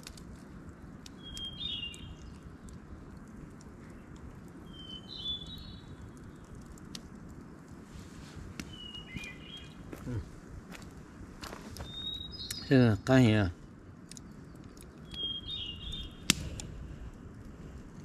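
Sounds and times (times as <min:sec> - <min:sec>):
low background noise: 0:00.0 - 0:18.0
songbird trilling phrase: 0:11.9 - 0:13.5, 0:15.1 - 0:16.2
light clicks: 0:14.0 - 0:15.2.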